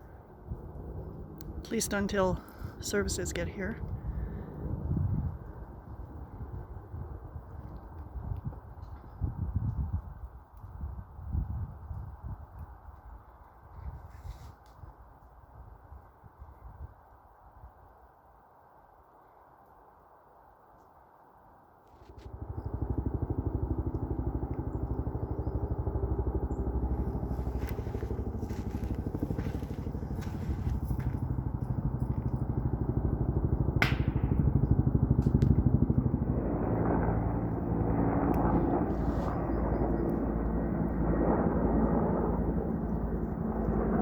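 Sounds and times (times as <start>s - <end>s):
helicopter engine and rotor: 0.0s - 8.1s, 22.0s - 44.0s.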